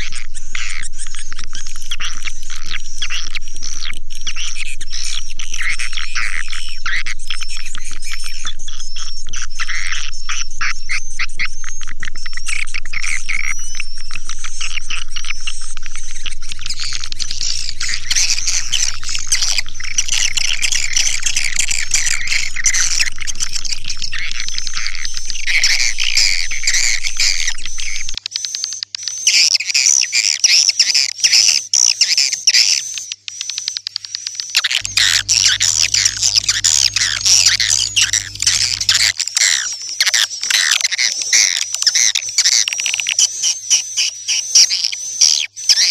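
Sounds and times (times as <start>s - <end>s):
faint low hum: 0.0s - 28.2s, 34.8s - 39.1s
swiftlets twittering chirps: 0.0s - 28.2s, 34.8s - 39.1s.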